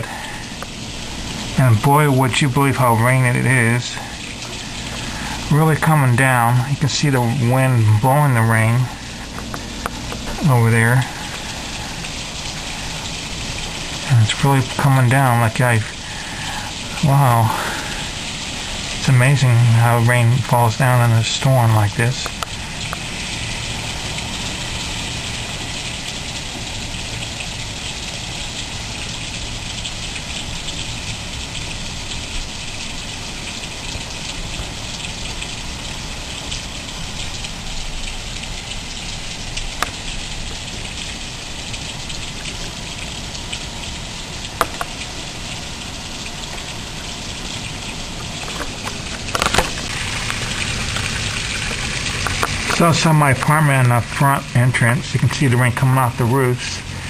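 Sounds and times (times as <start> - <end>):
heavy rain pouring: 0.0 - 57.0
sharp clicks: 44.6 - 45.0.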